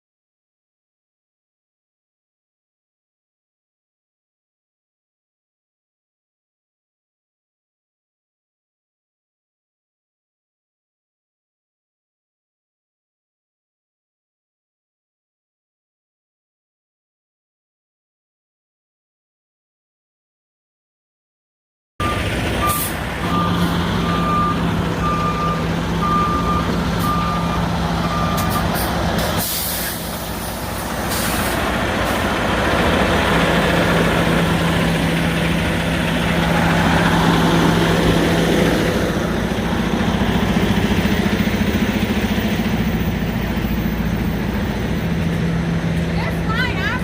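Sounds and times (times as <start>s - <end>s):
reversing alarm beeping: 22.0s - 28.8s
truck diesel engine running: 22.0s - 47.0s
air brake hisses: 22.7s - 23.0s, 28.4s - 32.2s.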